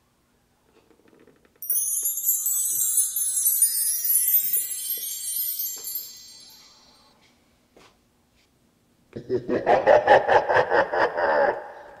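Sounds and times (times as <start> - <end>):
shimmering wind chimes: 1.6 - 7.3.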